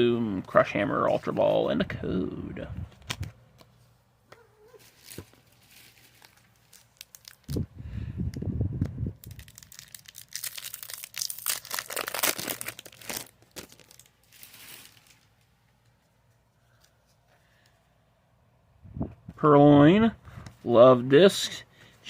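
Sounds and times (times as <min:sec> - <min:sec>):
foil wrapper crinkling and tearing: 0:04.8 - 0:07.6, 0:09.2 - 0:15.5.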